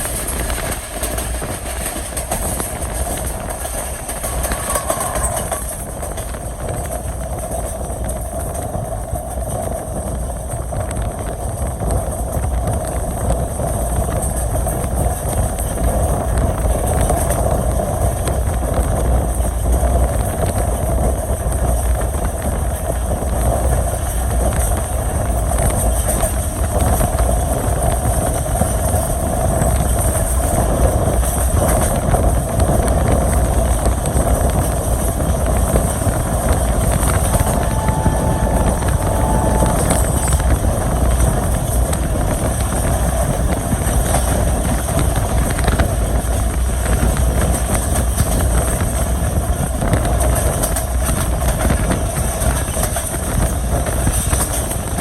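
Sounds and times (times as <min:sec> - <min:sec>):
train wheels rumbling on track: 0:00.0 - 0:55.0
short high tone: 0:37.0 - 0:41.4.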